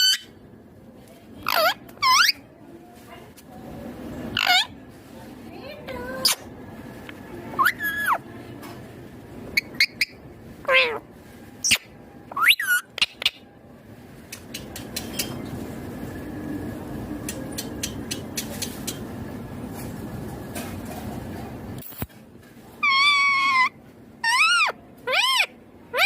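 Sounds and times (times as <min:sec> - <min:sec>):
parakeet calls: 0:01.4 - 0:02.4, 0:04.3 - 0:04.8, 0:07.6 - 0:08.2, 0:09.5 - 0:11.0, 0:11.6 - 0:13.4, 0:22.8 - 0:26.0
sharp clicks: 0:14.3 - 0:15.3, 0:17.2 - 0:19.0.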